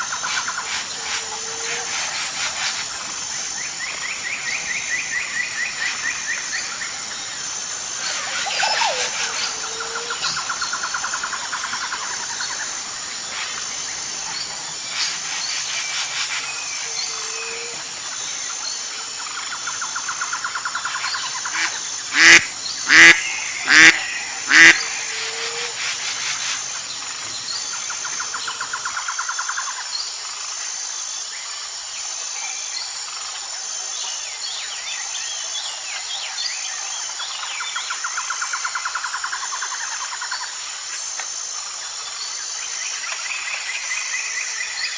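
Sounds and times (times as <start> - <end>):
insect chorus: 0.0 - 44.9
bird sharp calls: 20.7 - 26.6.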